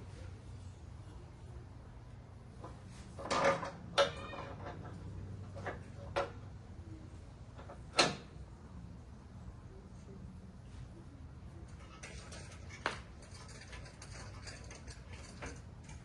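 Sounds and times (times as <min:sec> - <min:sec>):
low steady hum: 0:00.0 - 0:16.0
sharp clicks and knocks: 0:11.8 - 0:16.0.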